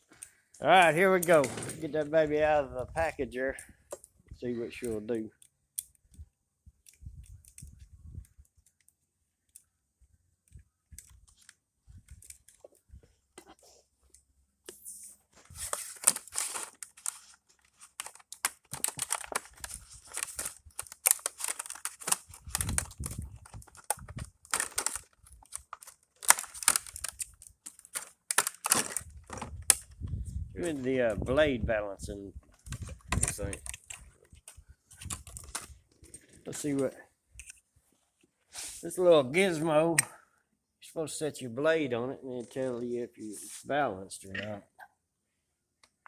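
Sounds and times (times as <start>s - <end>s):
packaging tearing and crinkling: 15.4s - 30.0s, 35.0s - 35.8s.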